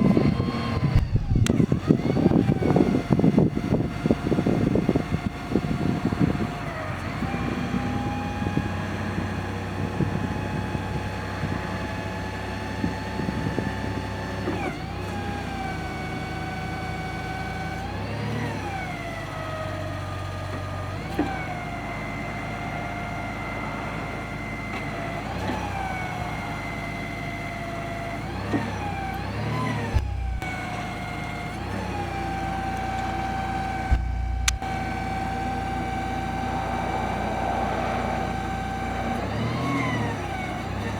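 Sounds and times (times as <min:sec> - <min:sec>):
forklift engine whining: 0:00.0 - 0:40.9
dull thuds: 0:00.7 - 0:02.0, 0:29.8 - 0:30.4, 0:33.7 - 0:34.6.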